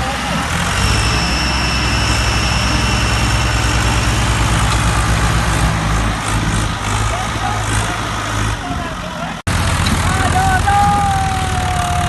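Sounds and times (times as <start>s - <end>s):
diesel tractor engine throbbing: 0.0s - 12.0s
high whine: 0.7s - 7.6s.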